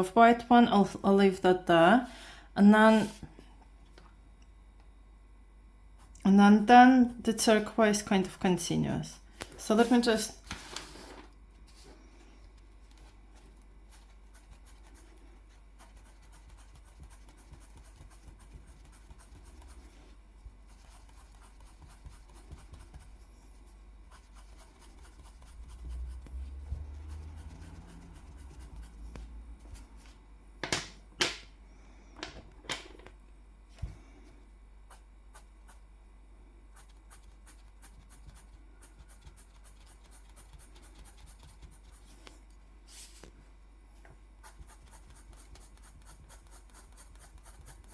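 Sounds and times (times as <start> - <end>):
drawing tool scratching on paper: 13.9 - 20.0, 20.6 - 23.2, 24.1 - 30.1, 36.8 - 42.2, 44.4 - 47.9.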